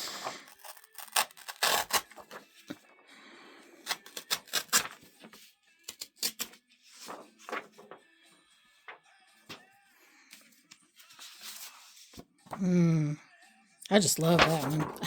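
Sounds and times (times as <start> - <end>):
paper rustling and tapping: 6.4 - 8.0, 14.0 - 15.0.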